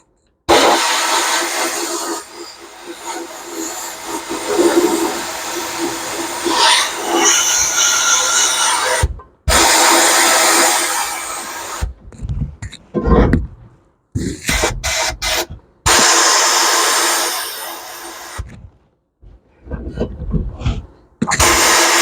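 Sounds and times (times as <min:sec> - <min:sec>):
media blaster hissing: 0:00.5 - 0:07.6, 0:21.4 - 0:22.0.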